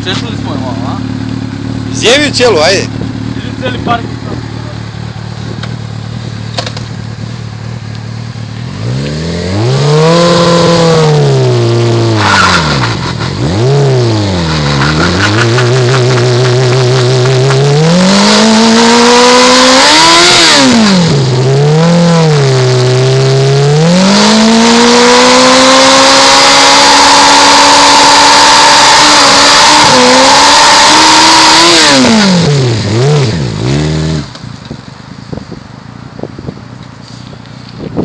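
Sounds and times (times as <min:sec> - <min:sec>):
motorcycle engine revving: 0:00.0 - 0:35.0
clatter: 0:05.4 - 0:09.2, 0:12.2 - 0:13.4, 0:14.4 - 0:19.0.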